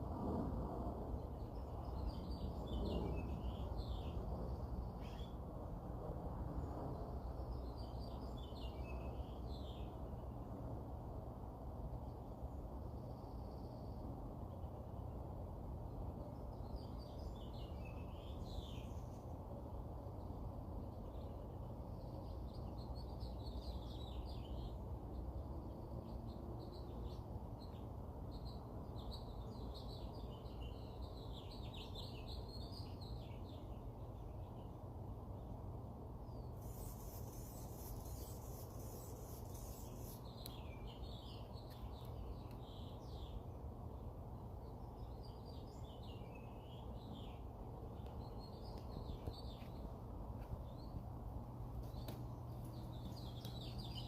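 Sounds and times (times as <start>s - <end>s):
songbirds twittering: 1.1s - 5.5s, 6.5s - 10.4s, 12.0s - 54.0s
high hissing buzz: 36.6s - 40.3s.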